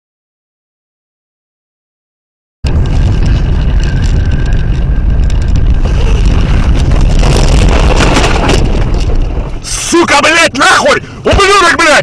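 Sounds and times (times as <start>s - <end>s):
vehicle engine and road rumble: 2.6s - 12.0s.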